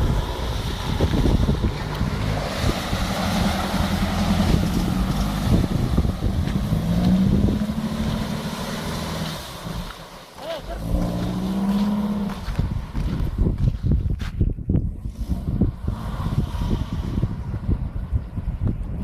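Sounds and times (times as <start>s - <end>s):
wind buffeting microphone: 0.0s - 10.0s, 10.8s - 19.0s
car engine running hard: 0.0s - 14.1s.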